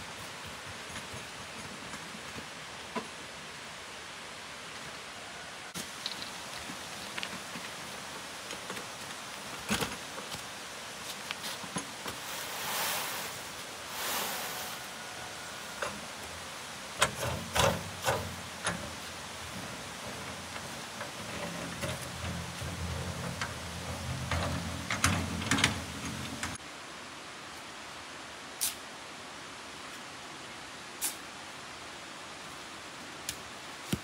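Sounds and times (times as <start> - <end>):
rain hiss: 0.0 - 34.0
knocks and clatter: 17.0 - 26.6.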